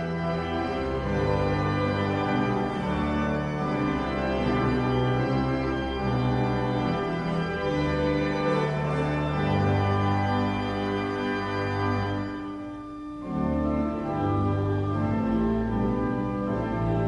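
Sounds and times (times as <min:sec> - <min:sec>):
church organ chords: 0:00.0 - 0:17.0.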